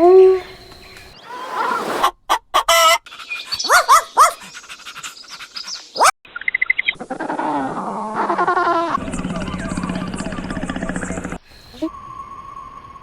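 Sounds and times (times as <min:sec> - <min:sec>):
animal cries and yelps: 0:01.1 - 0:06.2, 0:06.9 - 0:11.9.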